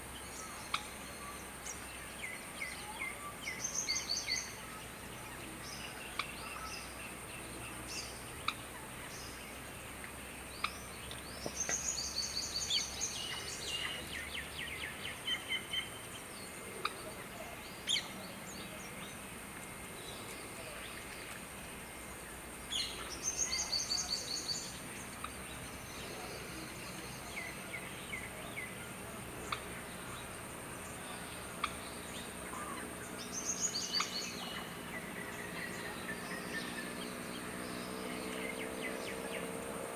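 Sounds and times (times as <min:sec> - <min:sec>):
birds chattering: 0:22.0 - 0:39.9.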